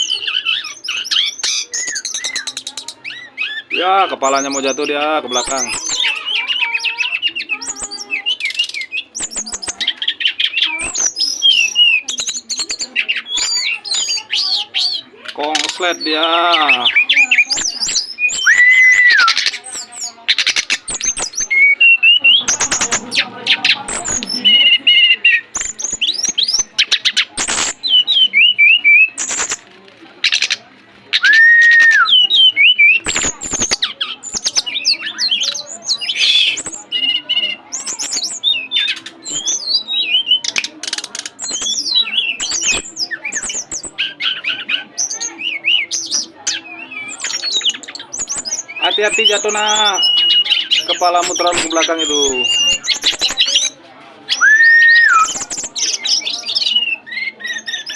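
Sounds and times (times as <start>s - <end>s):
songbird chirping and trilling: 0.0s - 57.9s.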